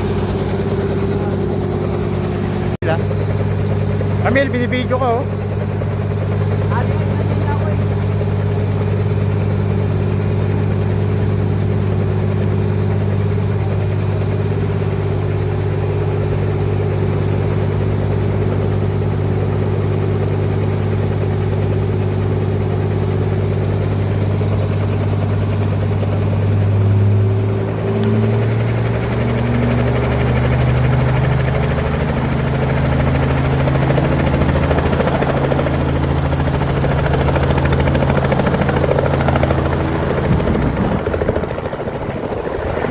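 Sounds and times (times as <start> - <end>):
helicopter engine and rotor: 0.0 - 42.9.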